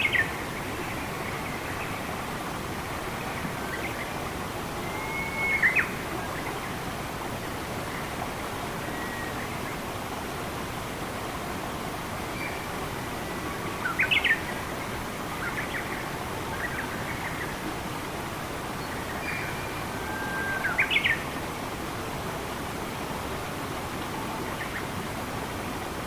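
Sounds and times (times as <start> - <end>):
songbirds calling: 0.0 - 8.2, 12.2 - 21.4
running water rushing: 0.0 - 26.0
thin bird whistle: 4.8 - 6.0.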